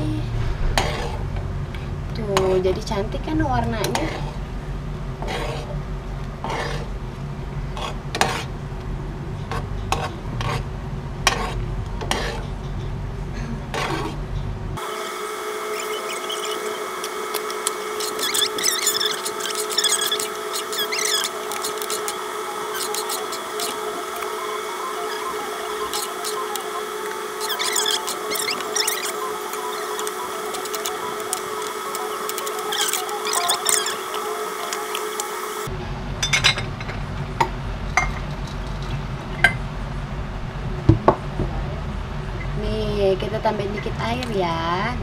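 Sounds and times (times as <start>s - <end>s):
low hum: 0.0s - 3.7s
steady tones with high squeaks: 15.6s - 35.7s
spoon scraping a pot: 17.9s - 23.8s, 27.4s - 29.2s.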